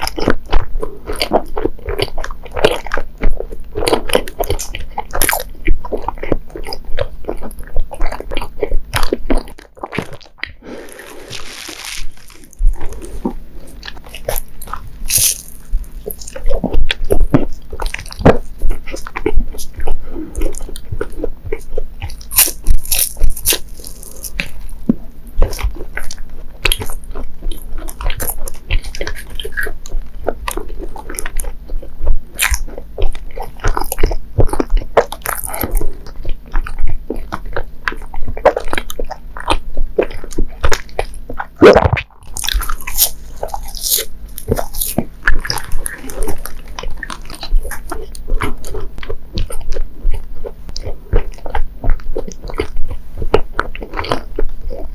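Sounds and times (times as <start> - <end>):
crunching wafer shell: 0.0 - 24.7, 25.4 - 54.9
chewing soft filling: 0.0 - 54.9.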